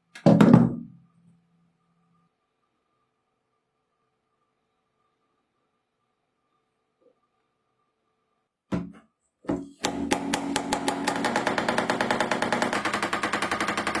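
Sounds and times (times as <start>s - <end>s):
hand drill motor running: 9.7s - 14.0s
drill rattling clatter: 9.8s - 14.0s.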